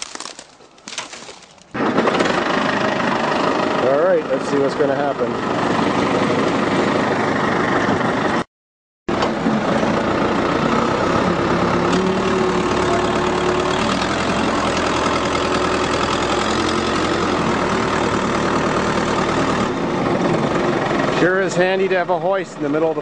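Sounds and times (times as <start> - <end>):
engine idling: 9.3 - 23.0.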